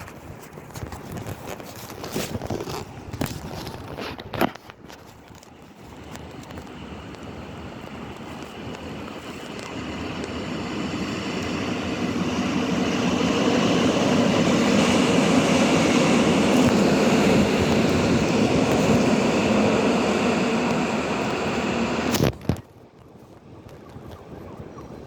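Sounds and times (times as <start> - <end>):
train running: 5.3 - 22.4.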